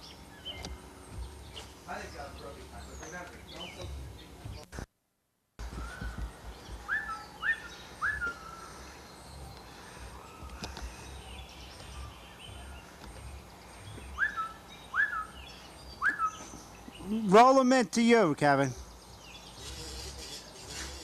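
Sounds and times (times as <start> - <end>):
parrot whistled chirps: 6.8 - 8.7, 14.2 - 15.4, 16.0 - 16.5.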